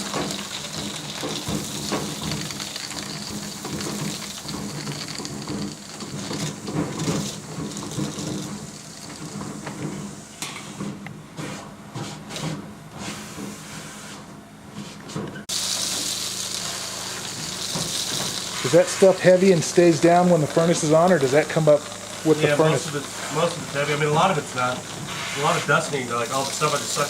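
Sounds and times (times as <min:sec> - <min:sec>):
debris rattling through ducts: 0:00.0 - 0:12.0, 0:15.4 - 0:27.0
vacuum machine humming: 0:00.0 - 0:12.0, 0:15.3 - 0:27.0
bright steady hiss: 0:15.5 - 0:27.0.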